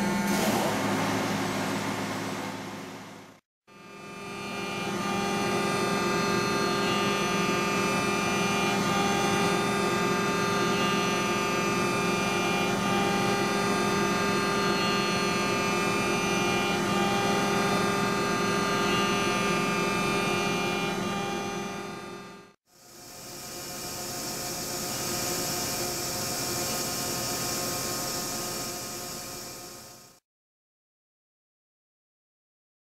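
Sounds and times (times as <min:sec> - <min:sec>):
high machining whine: 0:03.8 - 0:30.2
machine humming: 0:04.0 - 0:30.0.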